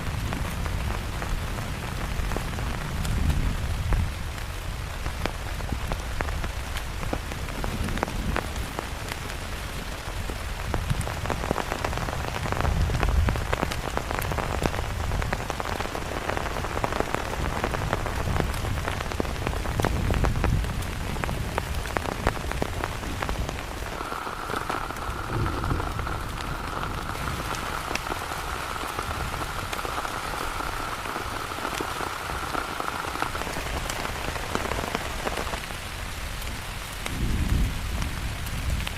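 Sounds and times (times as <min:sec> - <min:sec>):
heavy rain pattering: 0:00.0 - 0:38.9
low rumbling: 0:23.6 - 0:32.2.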